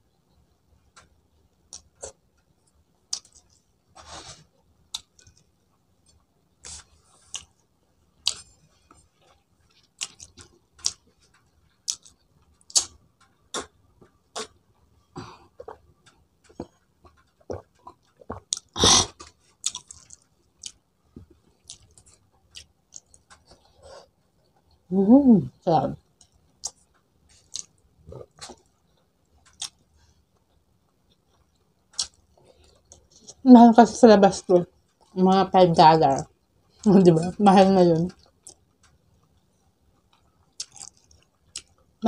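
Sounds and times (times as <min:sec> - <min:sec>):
chewing and lip-smacking: 0:03.1 - 0:03.6, 0:06.6 - 0:07.6, 0:08.2 - 0:14.6, 0:15.5 - 0:24.8, 0:26.2 - 0:33.4, 0:38.1 - 0:42.0.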